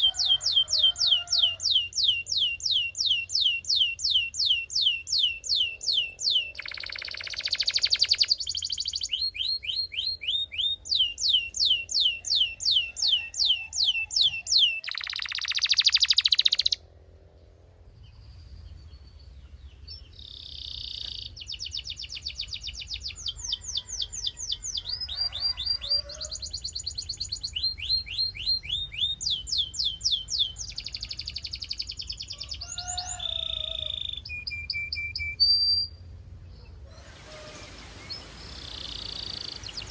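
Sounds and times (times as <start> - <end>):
harsh rattling bird call: 0.0 - 3.8, 4.4 - 9.1, 10.9 - 16.8, 36.9 - 39.9
canary singing trills: 0.0 - 16.8, 19.7 - 37.2, 37.8 - 39.9.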